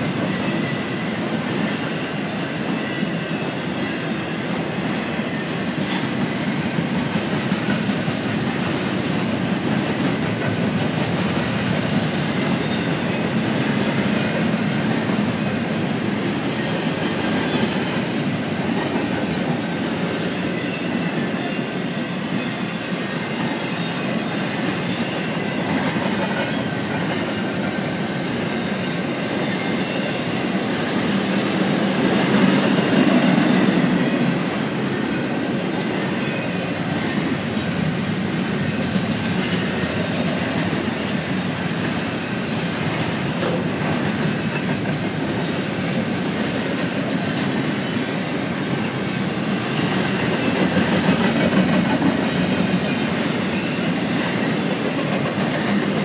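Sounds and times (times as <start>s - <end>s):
wheels rumbling on rail: 0.0s - 56.0s
wheels clacking over rail joints: 22.2s - 48.0s.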